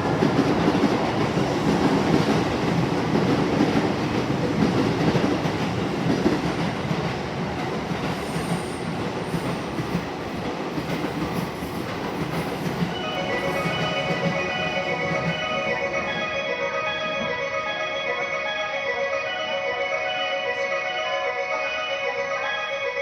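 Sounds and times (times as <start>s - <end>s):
train rumbling with wheel clatter: 0.0s - 17.4s
chiming departure melody: 12.8s - 23.0s.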